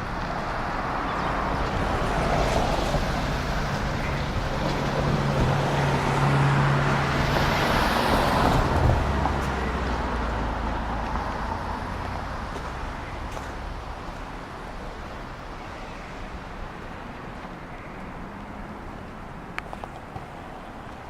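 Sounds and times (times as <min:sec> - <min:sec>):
road noise: 0:00.0 - 0:21.0
vehicle passing by: 0:00.3 - 0:14.2.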